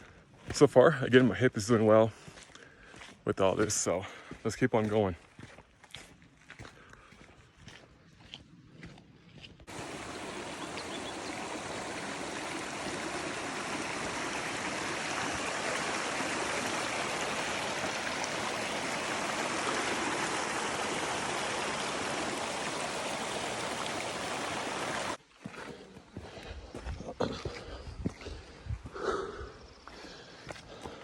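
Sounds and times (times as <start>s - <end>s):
stream flowing: 9.7s - 25.5s.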